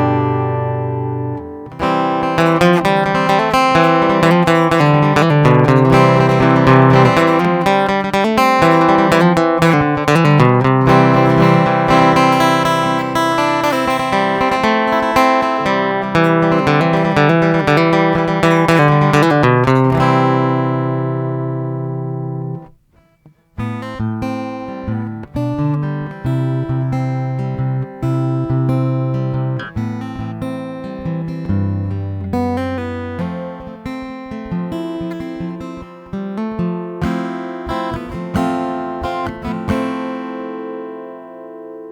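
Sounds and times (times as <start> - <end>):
acoustic guitar picking: 0.0 - 41.9.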